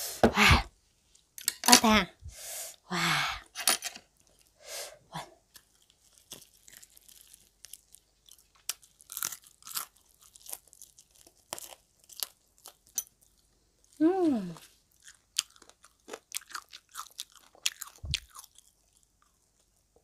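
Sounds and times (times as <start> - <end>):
person chewing crunchy food: 5.4 - 14.0, 14.6 - 20.0.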